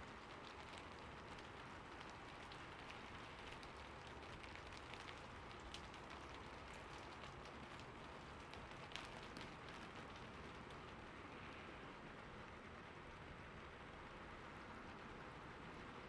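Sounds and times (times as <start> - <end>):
rain drops ticking: 0.0 - 16.0
steady rain hiss: 0.0 - 16.0.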